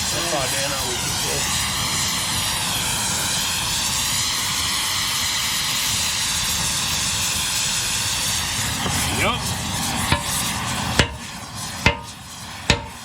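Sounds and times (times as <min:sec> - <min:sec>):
gas torch flame hissing: 0:00.0 - 0:13.0.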